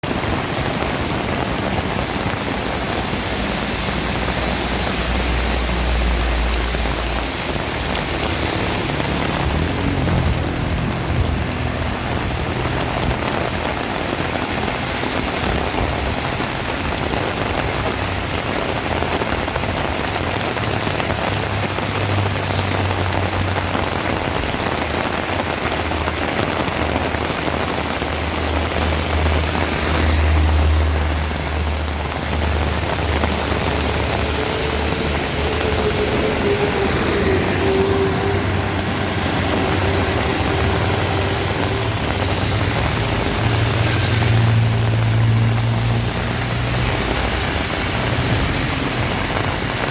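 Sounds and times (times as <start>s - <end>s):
heavy rain pouring: 0.0s - 49.9s
deep low rumble: 0.9s - 22.0s.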